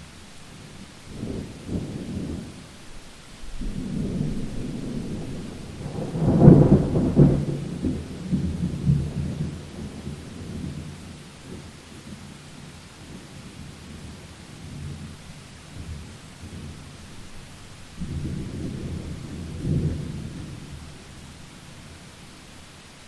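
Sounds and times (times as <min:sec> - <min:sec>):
steady rain hiss: 0:00.0 - 0:23.0
thunder rumbling: 0:01.1 - 0:11.8, 0:15.8 - 0:21.4.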